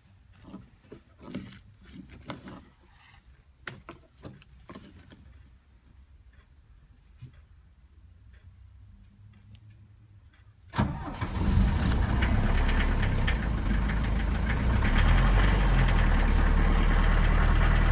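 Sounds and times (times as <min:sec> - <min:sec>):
diesel engine cranking and running: 0:10.8 - 0:17.9.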